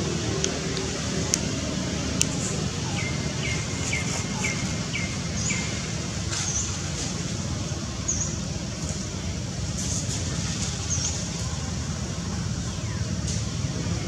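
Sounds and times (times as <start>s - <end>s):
steady low rumble: 0.0s - 14.0s
bird chirping: 2.8s - 6.7s.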